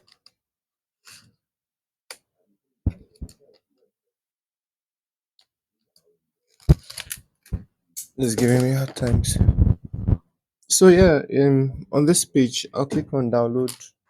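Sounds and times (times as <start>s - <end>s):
dull knock on desk: 2.9s - 3.3s.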